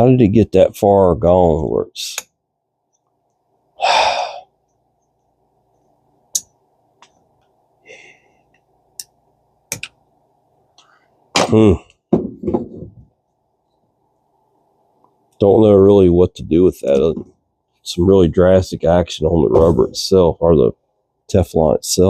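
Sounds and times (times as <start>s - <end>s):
breathy sigh: 3.8s - 4.5s, 7.8s - 8.4s.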